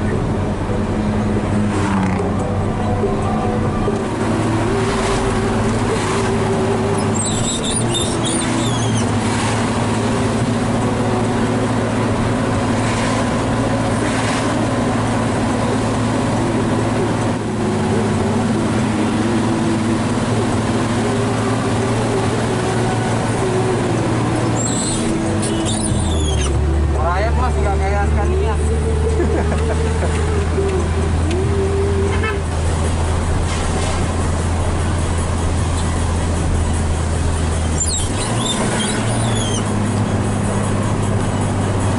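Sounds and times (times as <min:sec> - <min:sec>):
road noise: 0:00.0 - 0:41.9
truck diesel engine under load: 0:00.0 - 0:41.9
high squeaks: 0:07.0 - 0:09.1, 0:24.6 - 0:26.6, 0:37.7 - 0:39.8.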